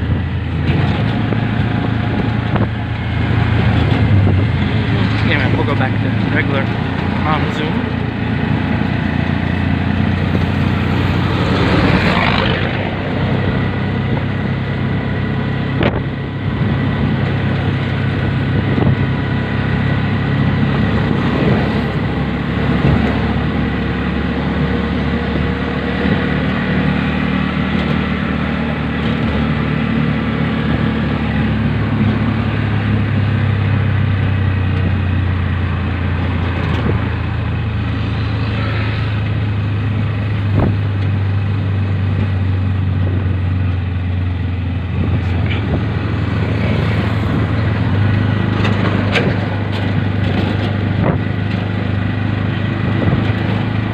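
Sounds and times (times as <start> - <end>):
road and traffic noise: 0.0 - 53.9
vehicle engine running: 0.0 - 53.9
vehicle passing: 0.7 - 15.3, 36.2 - 40.8, 44.8 - 53.9.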